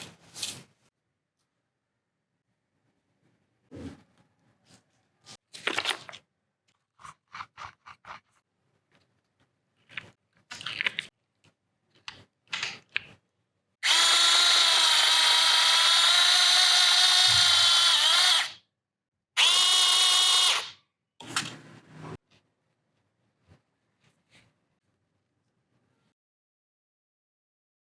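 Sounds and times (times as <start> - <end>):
small power tool whining: 13.8 - 18.6, 19.4 - 20.7.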